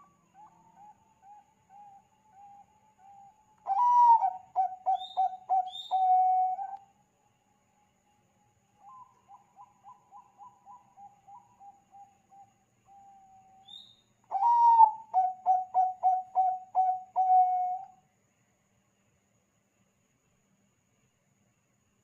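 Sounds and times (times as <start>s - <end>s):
zebra dove cooing: 3.1s - 6.8s.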